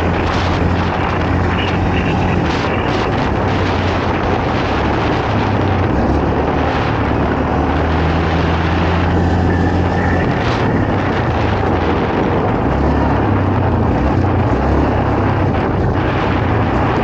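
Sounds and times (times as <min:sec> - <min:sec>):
dirt noise: 0:00.0 - 0:17.0
quad bike engine droning: 0:00.0 - 0:17.0
rushing wind: 0:00.0 - 0:17.0.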